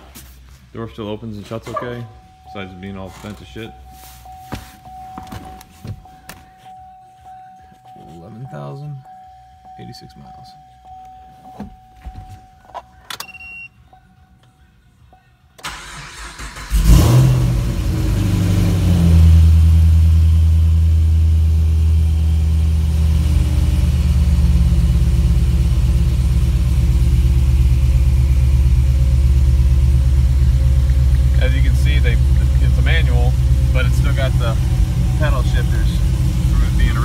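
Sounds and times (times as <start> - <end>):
car starter cranking: 15.6 - 18.1, 28.8 - 37.0
car engine revving and idling: 15.6 - 37.0.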